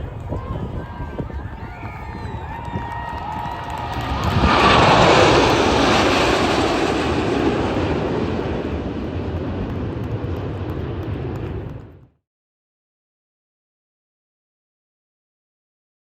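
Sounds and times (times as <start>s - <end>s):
jets passing low: 0.0s - 12.2s.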